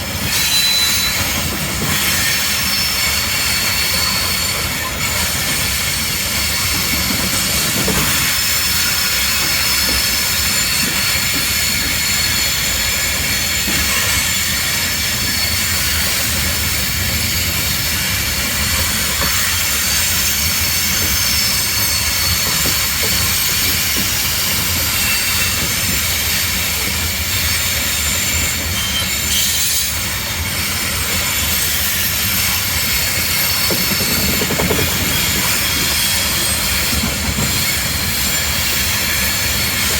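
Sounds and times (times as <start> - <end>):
low train rumble: 0.0 - 39.9
train wheels squealing on rails: 0.0 - 39.9.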